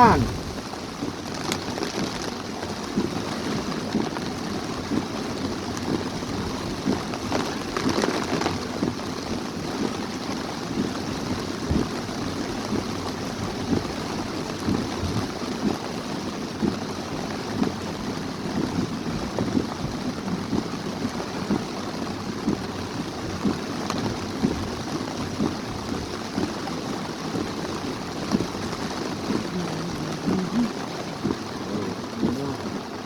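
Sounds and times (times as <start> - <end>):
heavy rain downpour: 0.0 - 33.0.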